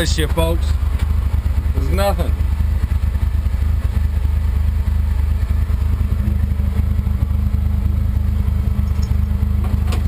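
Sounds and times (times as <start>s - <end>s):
car engine running steadily: 0.0s - 10.0s.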